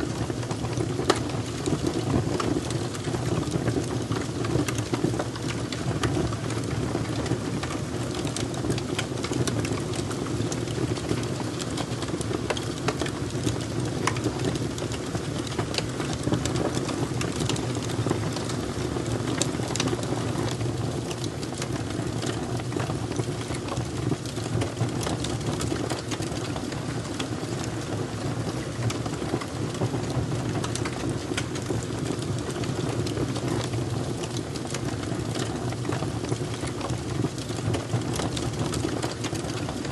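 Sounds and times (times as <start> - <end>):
fire crackling: 0.1 - 39.9.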